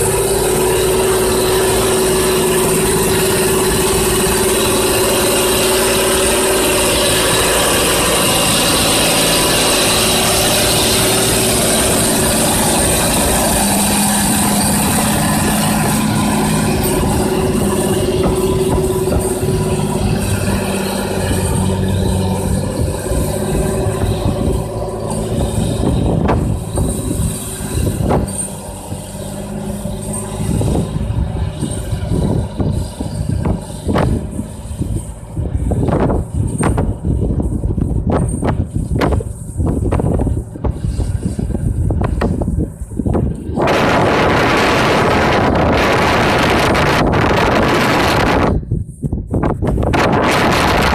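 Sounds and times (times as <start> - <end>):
tractor diesel engine running: 0.0 - 50.9
knocks and clanks: 6.9 - 42.5.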